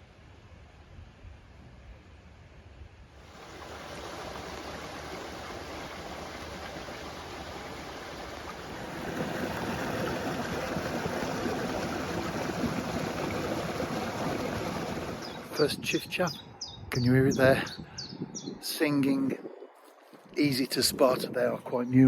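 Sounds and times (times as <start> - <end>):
stream water rushing: 3.2 - 16.1.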